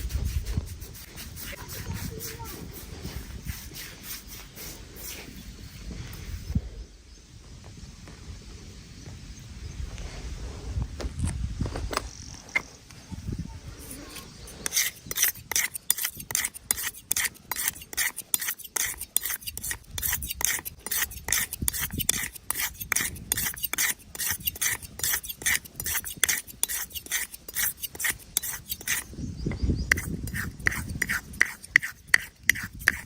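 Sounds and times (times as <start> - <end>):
razor scraping hair: 0.0 - 5.4, 13.8 - 29.1, 29.9 - 33.0.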